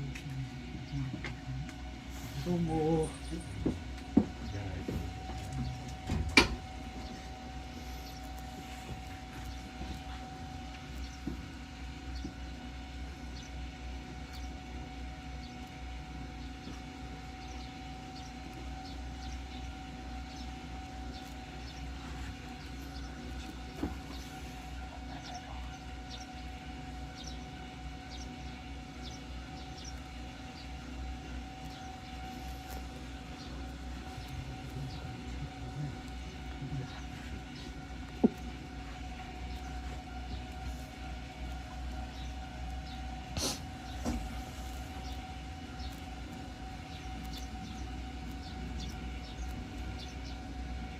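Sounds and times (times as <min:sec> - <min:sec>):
railcar equipment humming: 0:00.0 - 0:50.9.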